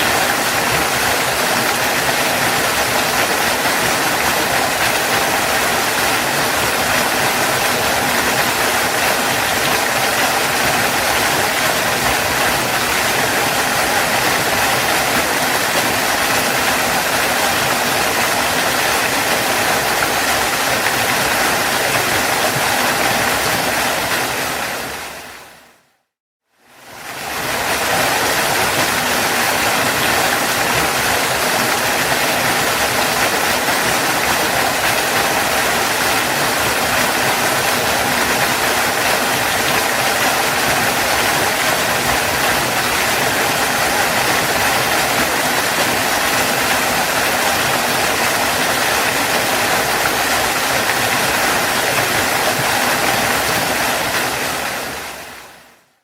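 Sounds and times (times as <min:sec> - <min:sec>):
waterfall rushing: 0:00.0 - 0:25.8, 0:26.7 - 0:55.8.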